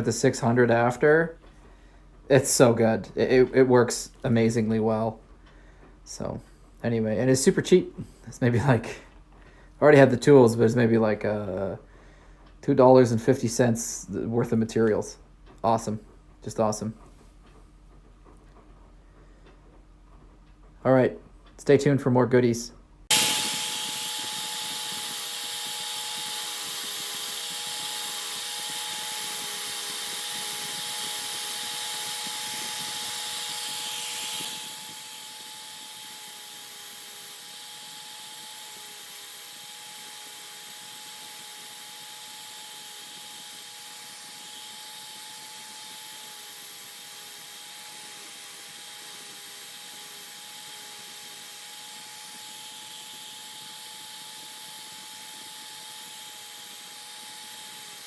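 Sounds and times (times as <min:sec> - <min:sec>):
electric sander whining: 0:23.1 - 0:58.0.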